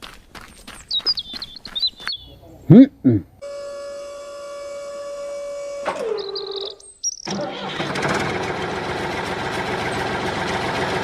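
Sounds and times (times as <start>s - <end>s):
engine starting and running: 5.8s - 11.0s.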